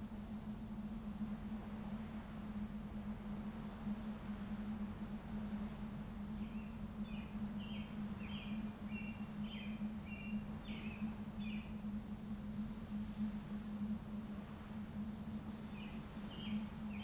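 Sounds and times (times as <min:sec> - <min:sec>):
steady low hum: 0:00.0 - 0:17.0
small bird singing: 0:06.4 - 0:11.8, 0:15.7 - 0:17.0.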